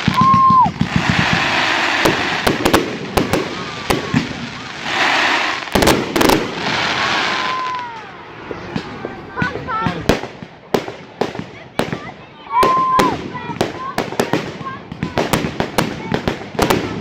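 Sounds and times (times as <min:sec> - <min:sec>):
firework whistle dropping in pitch: 0:00.0 - 0:02.4
firework bangs and cracks: 0:00.0 - 0:17.0
firework crackling hiss: 0:00.0 - 0:17.0.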